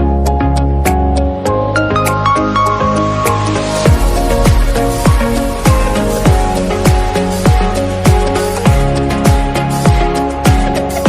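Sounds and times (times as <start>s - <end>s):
electronic music: 1.2s - 11.0s
sustained synth chords: 2.2s - 9.1s
deep kick drum: 3.9s - 10.6s.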